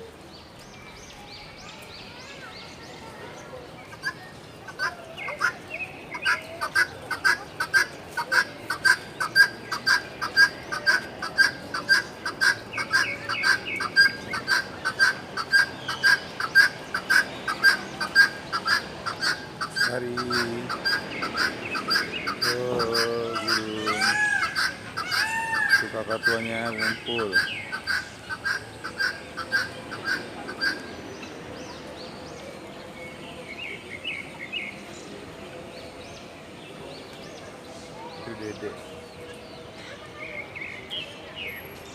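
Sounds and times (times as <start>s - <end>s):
faint bird calls: 1.1s - 32.6s
bird chirping: 3.8s - 41.9s.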